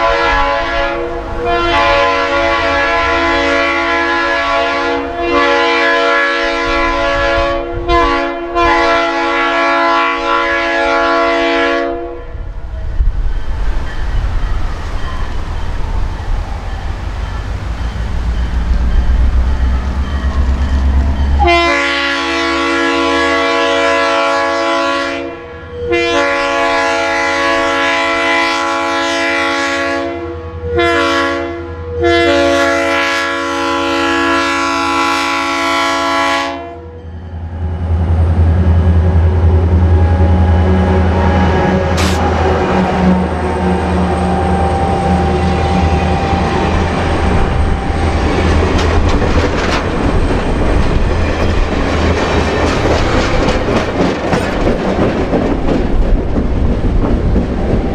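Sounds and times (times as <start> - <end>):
locomotive air horn blasts: 0.0 - 12.4, 21.4 - 37.0, 40.1 - 48.2
train rattling on rails: 0.0 - 30.0, 32.3 - 57.9
locomotive engine rumble: 12.3 - 22.5, 37.1 - 57.9.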